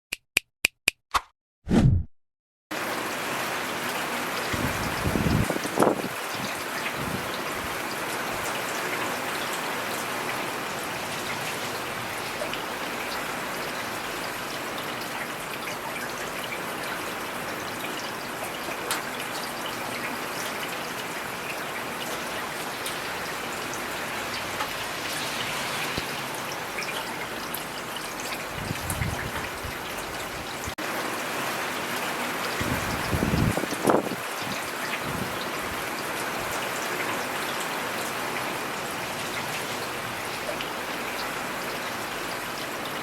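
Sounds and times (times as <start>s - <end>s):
rain falling: 2.8s - 43.0s.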